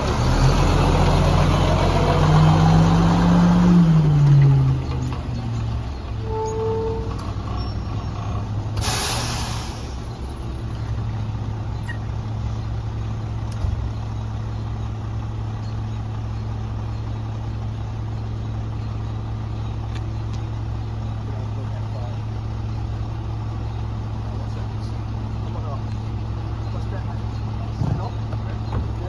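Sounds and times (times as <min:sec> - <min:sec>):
diesel engine idling: 0:00.0 - 0:29.0
air brake hiss: 0:08.8 - 0:10.0.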